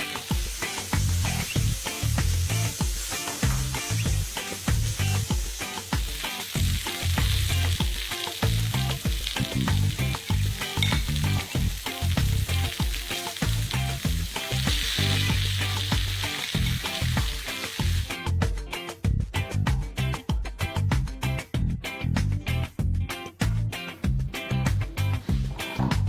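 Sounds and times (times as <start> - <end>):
cauliflower sizzling in a pan: 0.0 - 18.2
background music with bass line: 0.0 - 26.0.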